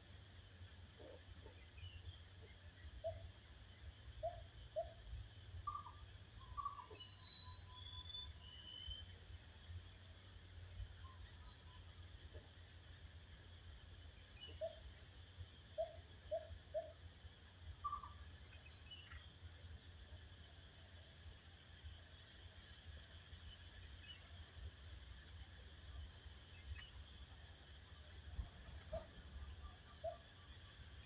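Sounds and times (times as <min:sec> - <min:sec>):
insect-like hiss: 0:00.0 - 0:31.0
songbirds whistling: 0:04.2 - 0:10.6, 0:17.8 - 0:19.2
bird chirps: 0:04.2 - 0:11.7, 0:17.8 - 0:19.2, 0:28.8 - 0:30.5.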